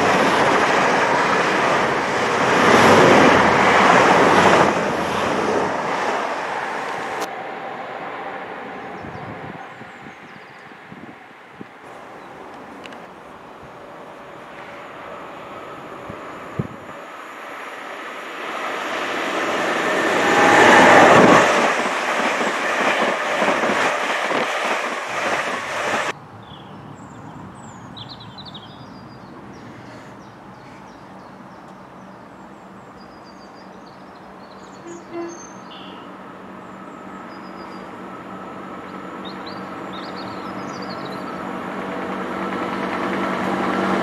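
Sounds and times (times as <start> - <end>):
passenger train passing: 0.0 - 44.0
train wheel clicks: 41.1 - 44.0.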